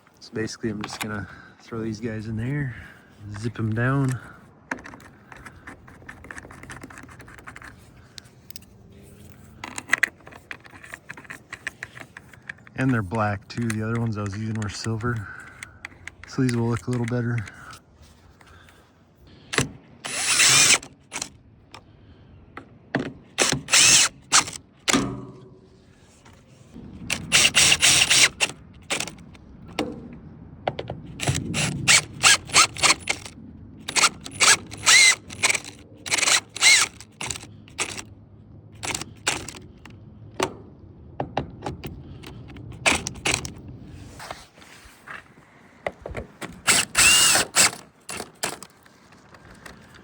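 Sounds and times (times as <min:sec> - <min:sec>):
power driver clicking and whirring: 0:09.6 - 0:17.8, 0:19.5 - 0:21.4, 0:23.4 - 0:25.2, 0:27.1 - 0:29.4, 0:31.2 - 0:38.1, 0:38.8 - 0:40.5, 0:41.7 - 0:43.6, 0:46.0 - 0:48.8.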